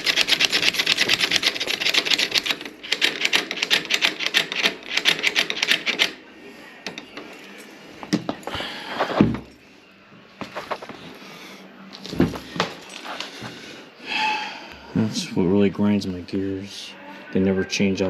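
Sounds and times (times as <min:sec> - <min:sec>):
latch bolt clicking rapidly: 0:00.0 - 0:06.2.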